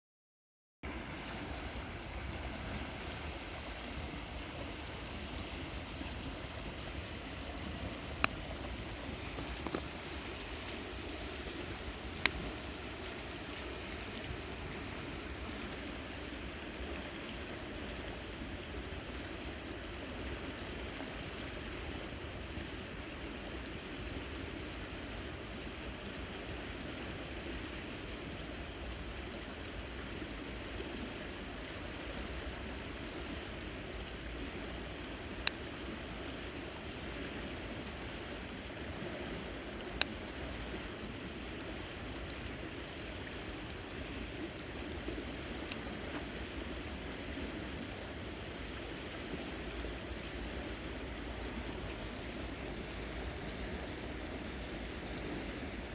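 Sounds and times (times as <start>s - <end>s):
river water flowing: 0.8s - 55.9s.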